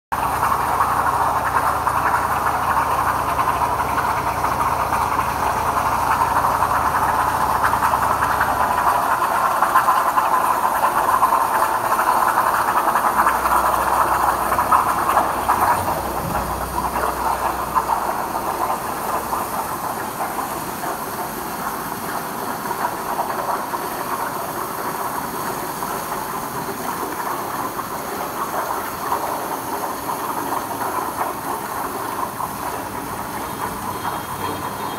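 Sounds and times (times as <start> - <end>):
low machine hum: 0.2 - 22.8.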